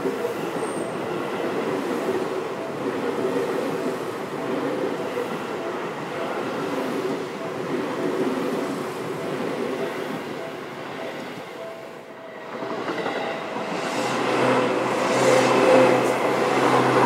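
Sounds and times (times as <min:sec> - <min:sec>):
train wheels rushing: 0:12.4 - 0:17.0.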